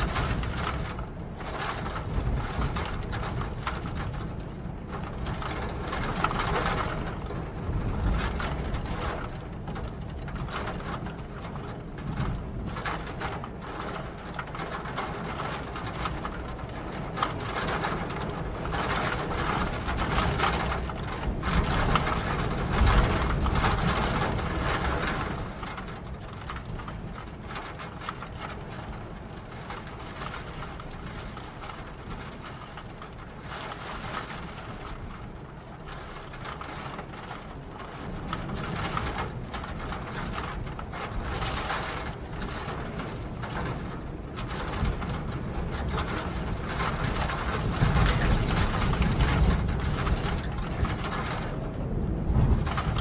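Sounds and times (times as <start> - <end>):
rain falling: 0.0 - 53.0
low rumble: 46.7 - 53.0.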